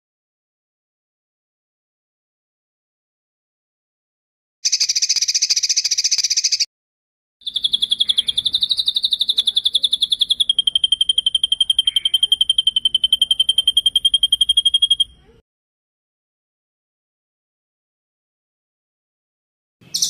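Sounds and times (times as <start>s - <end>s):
songbird trilling: 4.6s - 6.7s, 7.4s - 15.3s.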